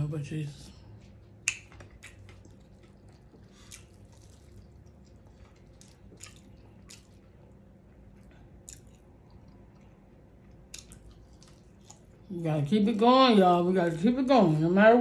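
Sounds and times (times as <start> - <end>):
person chewing: 1.3 - 12.3.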